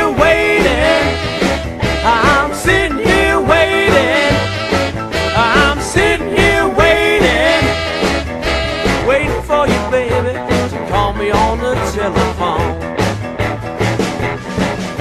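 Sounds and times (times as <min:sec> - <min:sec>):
lead line bending notes: 0:00.0 - 0:09.4
blues band playing: 0:00.0 - 0:15.0.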